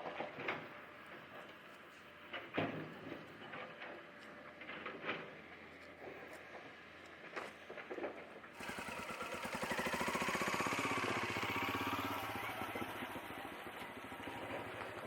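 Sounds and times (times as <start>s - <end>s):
motorcycle engine running: 8.6s - 15.0s.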